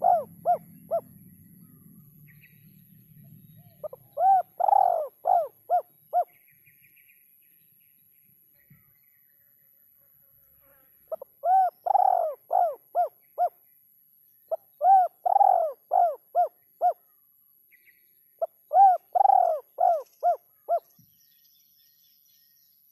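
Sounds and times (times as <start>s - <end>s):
dove cooing: 0.0s - 1.9s, 3.6s - 6.3s, 11.1s - 13.5s, 14.8s - 17.0s, 18.4s - 20.9s.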